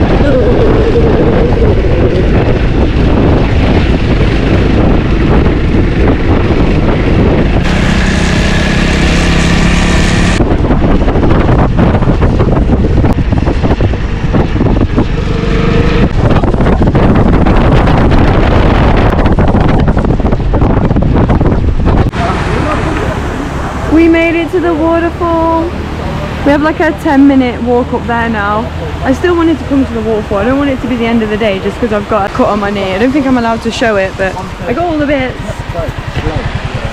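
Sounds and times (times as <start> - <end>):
pitched hum: 0.0 - 28.4
wind buffeting microphone: 0.0 - 36.9
scooter engine running: 29.9 - 36.9.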